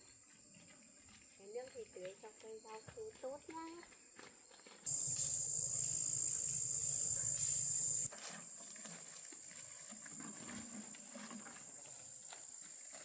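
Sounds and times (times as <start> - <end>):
faint ticks and rustles: 0.1 - 13.0
insect buzzing: 4.9 - 8.6.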